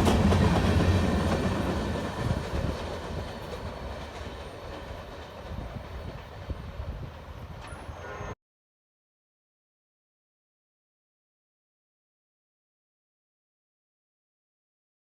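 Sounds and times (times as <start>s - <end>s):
wheels clicking over rail joints: 0.0s - 7.8s
freight train rolling past: 0.0s - 8.4s.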